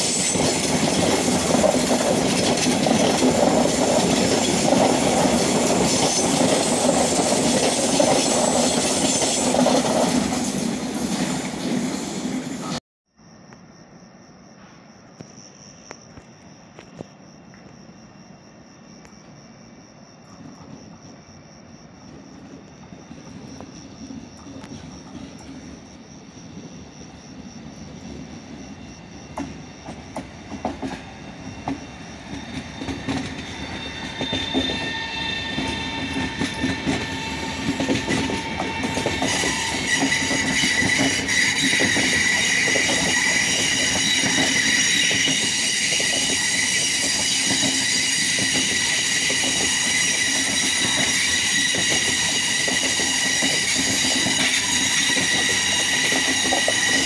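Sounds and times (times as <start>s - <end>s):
high-pitched train squeal: 0.0s - 12.8s, 26.6s - 57.0s
wheels clicking over rail joints: 35.6s - 57.0s.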